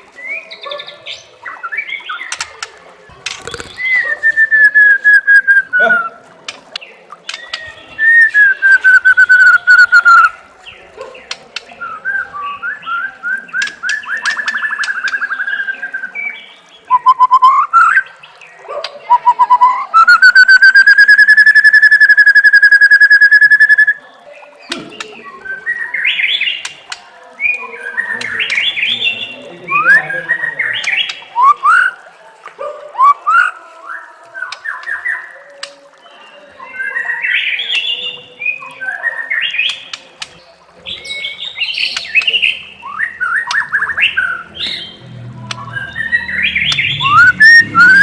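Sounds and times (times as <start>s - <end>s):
songbird singing: 0.0s - 48.0s.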